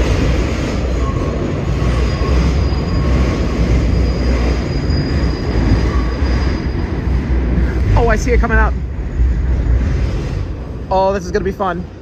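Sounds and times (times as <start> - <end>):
subway car wheels rumbling on rail: 0.0 - 12.0
faint high wheel squeal: 0.9 - 7.2.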